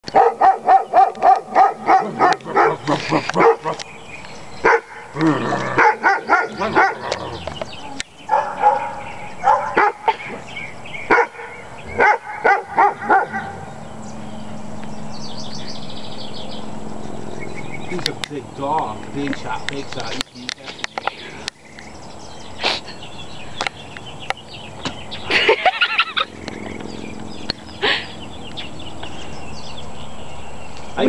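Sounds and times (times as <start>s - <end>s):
dog barking: 0.1s - 3.8s, 4.6s - 5.1s, 5.8s - 7.2s, 8.3s - 10.4s, 11.1s - 13.6s.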